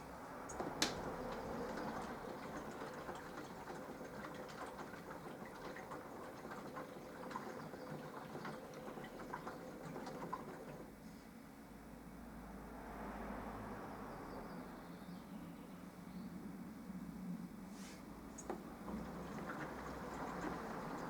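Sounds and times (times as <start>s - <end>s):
washing machine motor hum: 0.0s - 11.0s, 18.2s - 21.0s
water swishing: 18.4s - 21.0s.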